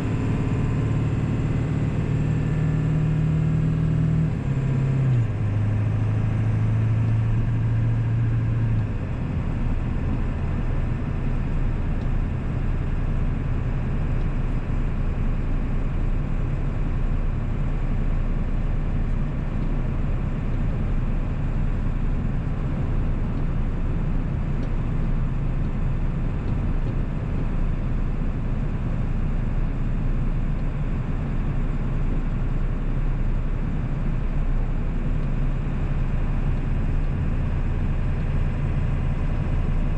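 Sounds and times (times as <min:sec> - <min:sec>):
road noise: 0:00.0 - 0:30.4
diesel engine rumble: 0:00.0 - 0:39.9.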